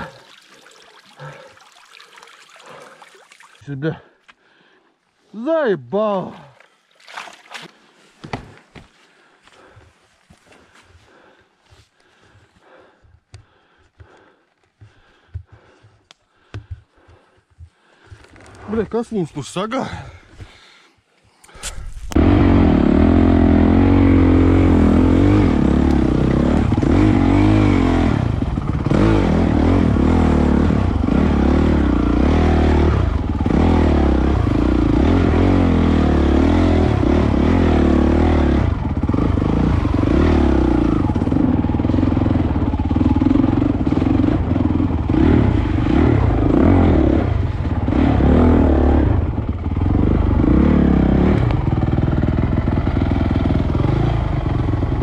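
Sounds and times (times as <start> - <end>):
motorcycle rattles and knocks: 14.8 - 18.5
motorcycle engine revving: 22.0 - 55.0.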